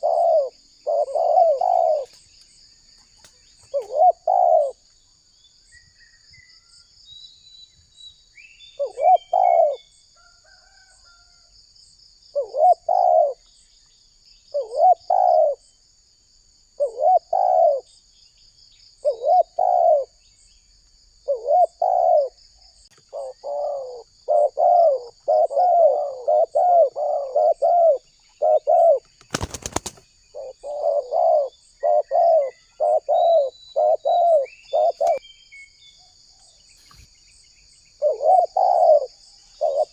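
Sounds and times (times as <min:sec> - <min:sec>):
dove cooing: 0:00.0 - 0:02.2, 0:03.6 - 0:04.8, 0:08.8 - 0:09.9, 0:12.3 - 0:13.4, 0:14.5 - 0:15.6, 0:16.8 - 0:17.9, 0:19.0 - 0:20.2, 0:21.2 - 0:22.4, 0:23.0 - 0:35.2, 0:38.0 - 0:39.9.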